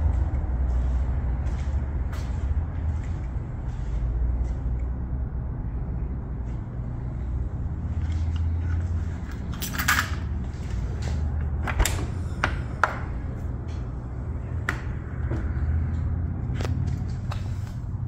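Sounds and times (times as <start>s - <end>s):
car engine idling: 10.4s - 18.0s.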